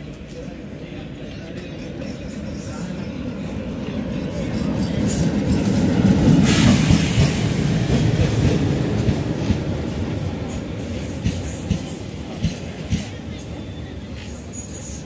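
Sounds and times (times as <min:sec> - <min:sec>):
diesel locomotive engine rumbling: 0:00.0 - 0:15.0
train wheels clickety-clack: 0:00.0 - 0:15.0.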